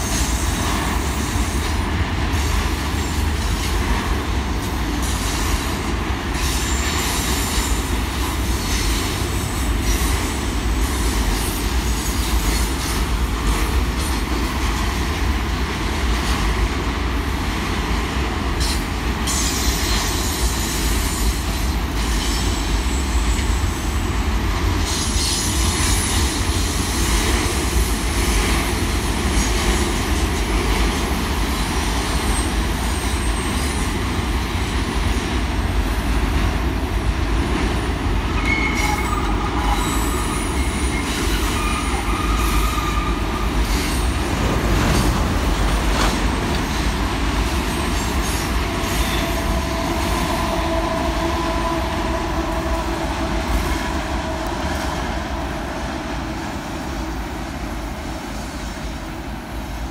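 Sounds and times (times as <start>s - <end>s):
train wheels rumbling on rail: 0.0s - 59.9s
high-pitched wheel squeals: 38.4s - 44.1s.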